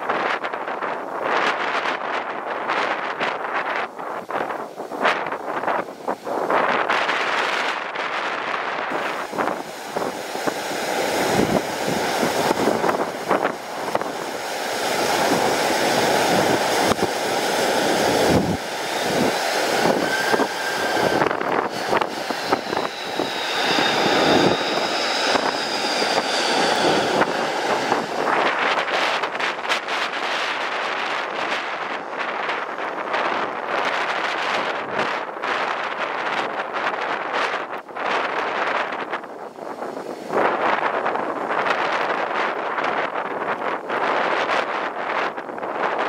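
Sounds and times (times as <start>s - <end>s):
gusty wind buffeting microphone: 0.0s - 46.0s
jet engines whining: 6.9s - 34.4s.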